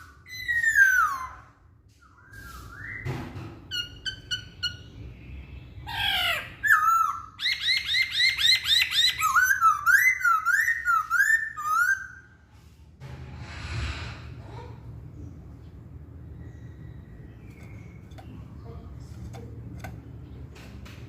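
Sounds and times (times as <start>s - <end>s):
bird whistling song: 0.0s - 12.4s.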